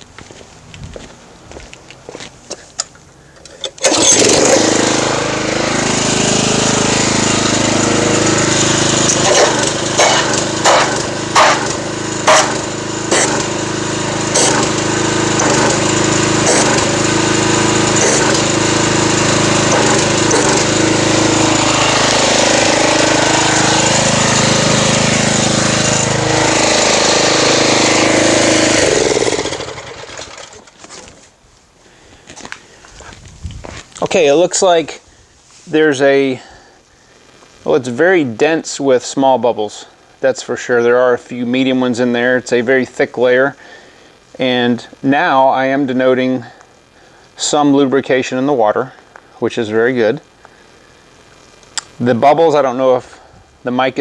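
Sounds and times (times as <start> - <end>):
pressure washer running: 3.6 - 30.9.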